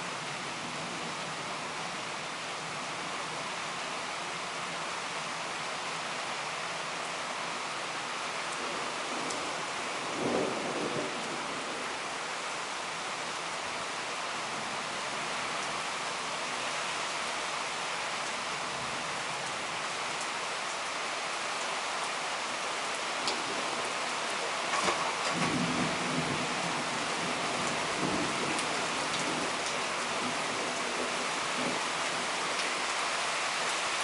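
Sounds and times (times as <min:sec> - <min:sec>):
heavy rain pouring: 0:00.0 - 0:34.0
thunder rumble: 0:24.6 - 0:29.6.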